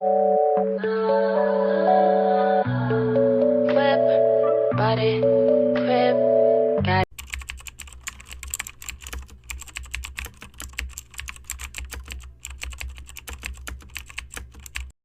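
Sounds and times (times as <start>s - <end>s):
rapid keyboard typing: 7.1s - 15.0s.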